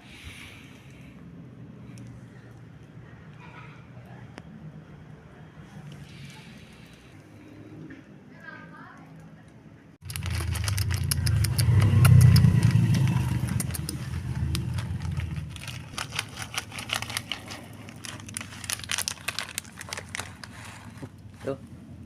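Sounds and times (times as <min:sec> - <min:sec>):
sharp clicks and crackles: 0:08.9 - 0:21.3
vehicle engine rumble: 0:10.0 - 0:22.0.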